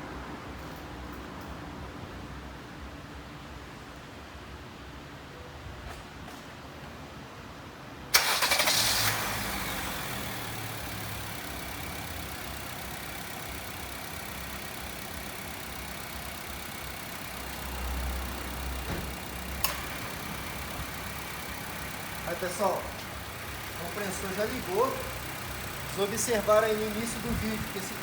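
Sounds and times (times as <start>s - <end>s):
car engine starting and idling: 8.1s - 28.0s.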